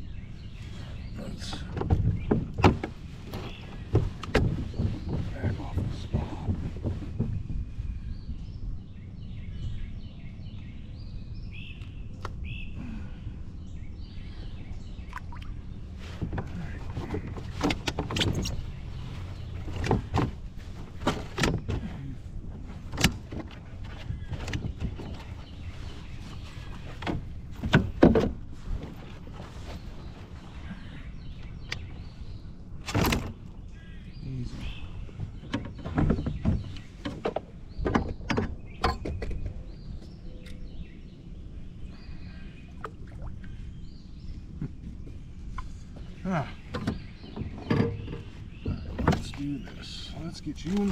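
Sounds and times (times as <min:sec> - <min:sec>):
low steady rumble: 0:00.0 - 0:50.9
small birds chirping: 0:00.0 - 0:50.9
wind: 0:00.0 - 0:50.9
water: 0:14.2 - 0:32.0, 0:41.6 - 0:50.9.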